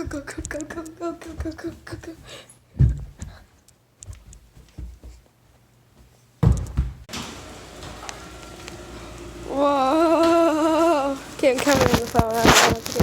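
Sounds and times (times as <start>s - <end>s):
footsteps hurrying: 0.2s - 7.1s.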